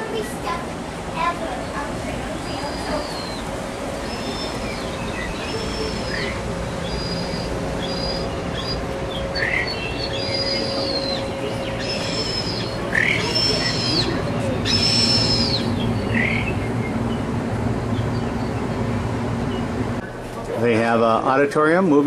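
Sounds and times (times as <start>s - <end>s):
steady background hum: 0.0s - 22.0s
bird whistled calls: 2.5s - 16.9s.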